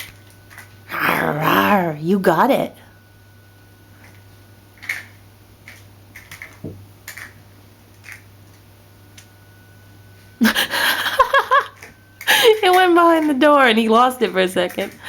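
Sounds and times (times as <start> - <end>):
person speaking loudly: 0.9 - 2.5.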